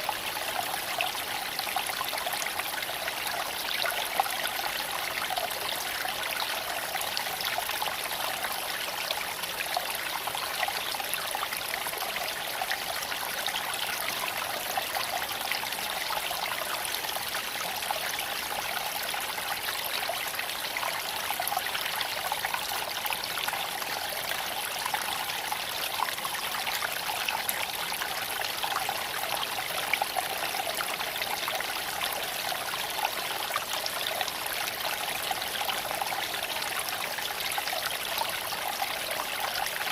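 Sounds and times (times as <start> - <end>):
creek water flowing over stones: 0.0 - 39.9.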